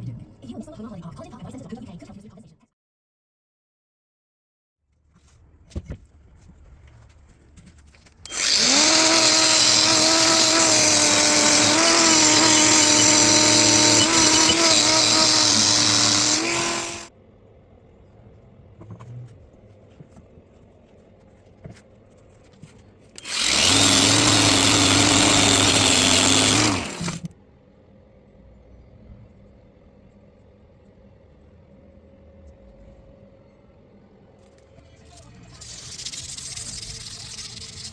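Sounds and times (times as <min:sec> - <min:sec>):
electric power tool running: 0:08.3 - 0:17.1, 0:23.2 - 0:27.3.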